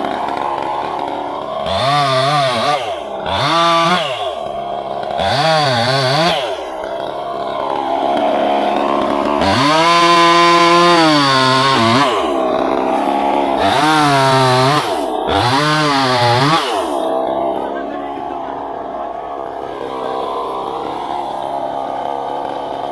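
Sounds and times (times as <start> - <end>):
chainsaw cutting wood: 0.0 - 22.9.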